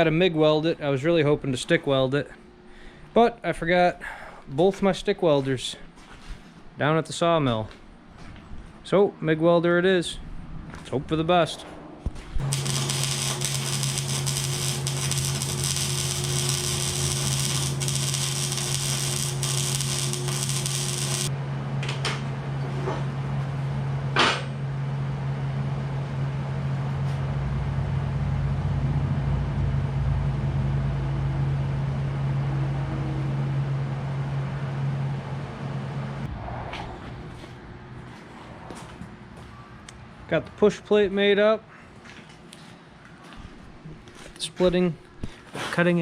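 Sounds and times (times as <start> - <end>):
welder hum: 12.0 - 22.3
welding arc crackling hiss: 12.4 - 21.3.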